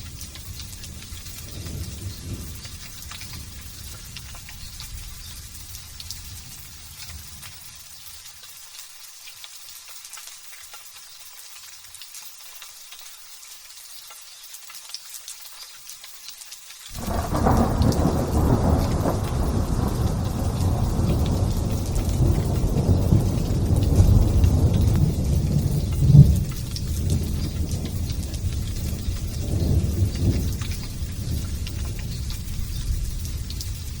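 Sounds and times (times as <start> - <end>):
thunder rumbling: 0.0 - 7.4, 16.9 - 34.0
light drizzle pattering: 0.0 - 34.0.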